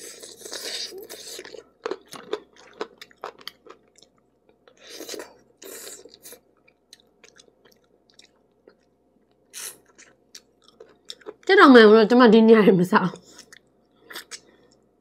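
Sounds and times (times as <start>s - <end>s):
person chewing chicken wing: 0.0s - 8.9s.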